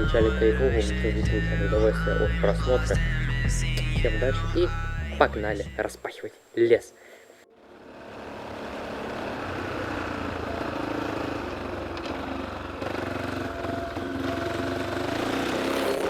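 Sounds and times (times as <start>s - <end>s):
motorcycle engine running: 0.0s - 4.1s, 7.6s - 16.0s.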